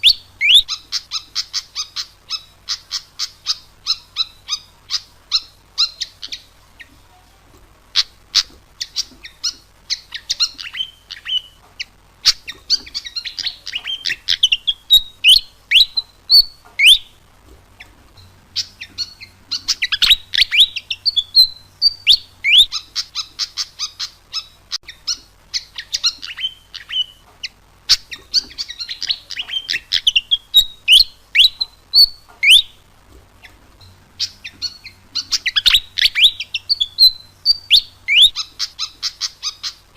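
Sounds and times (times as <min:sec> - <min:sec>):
bird singing rapid high chirps: 0:00.0 - 0:07.0, 0:07.9 - 0:17.2, 0:17.8 - 0:39.9
upward-sweeping bird whistles: 0:13.0 - 0:17.2, 0:18.6 - 0:24.5, 0:27.9 - 0:32.8, 0:34.2 - 0:39.8.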